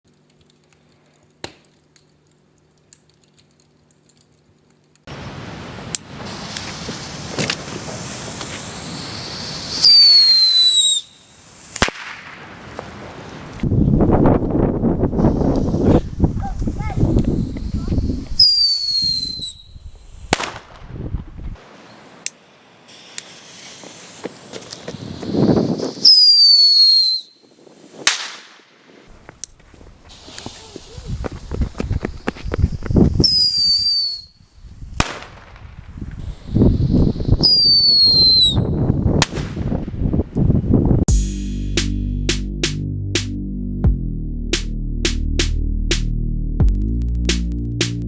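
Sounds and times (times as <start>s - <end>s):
firework crack: 5.0s - 13.7s, 15.0s - 40.4s
firework hissing sparks: 5.1s - 13.6s, 15.1s - 20.6s, 21.6s - 28.3s, 29.9s - 38.6s
firework bang: 11.8s - 13.0s.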